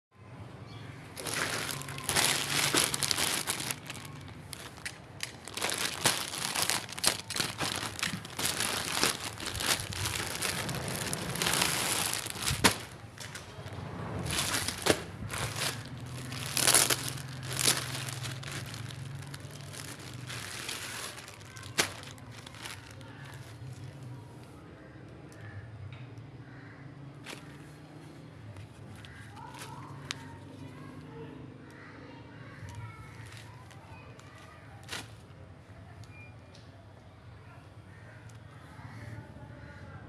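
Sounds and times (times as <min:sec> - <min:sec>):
plastic packaging crinkling: 0:01.2 - 0:23.6.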